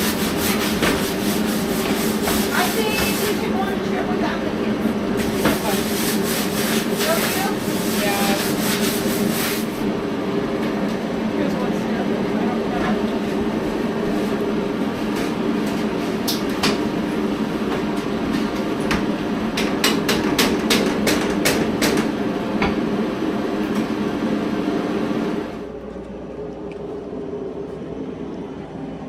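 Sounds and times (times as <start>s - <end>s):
steady rumbling background: 22.8s - 29.0s.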